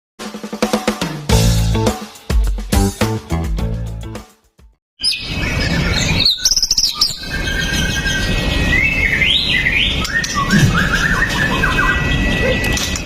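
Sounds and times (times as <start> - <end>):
shama singing whistled notes: 6.0 - 13.0.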